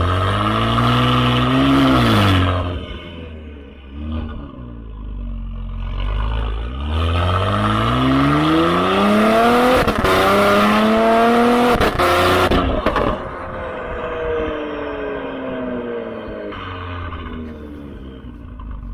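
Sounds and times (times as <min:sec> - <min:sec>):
car engine accelerating hard: 0:00.0 - 0:18.9
exhaust crack at gear shift: 0:16.5 - 0:18.9.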